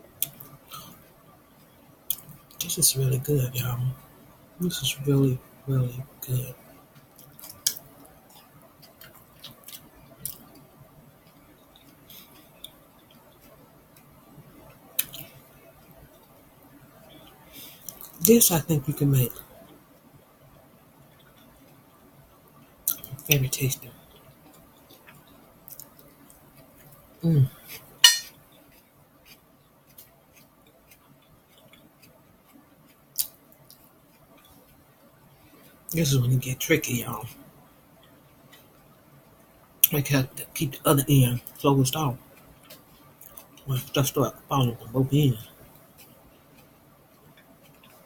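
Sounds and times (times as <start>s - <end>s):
chewing with wet smacks: 6.9s - 16.4s, 17.0s - 18.3s, 22.6s - 23.4s, 24.0s - 34.9s, 41.4s - 44.4s, 45.4s - 48.0s.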